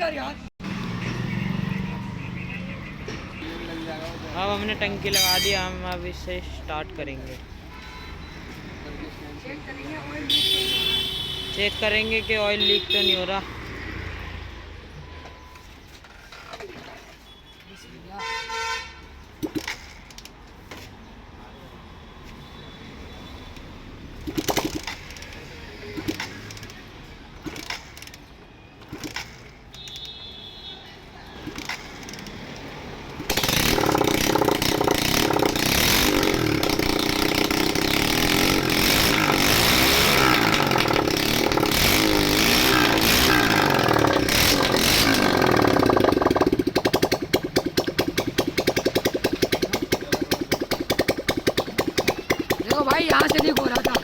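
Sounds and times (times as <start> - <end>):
motorcycle engine revving: 0.6 - 2.4, 31.4 - 54.0.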